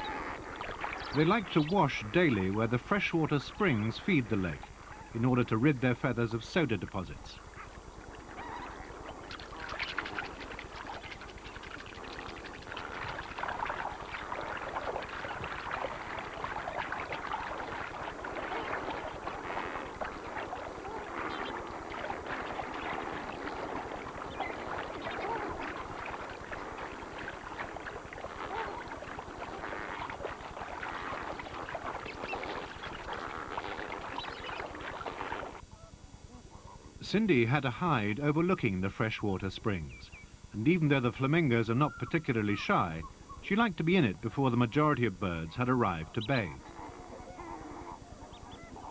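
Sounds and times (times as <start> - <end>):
flamingos calling: 0.0 - 48.9
water splashing: 8.2 - 35.6.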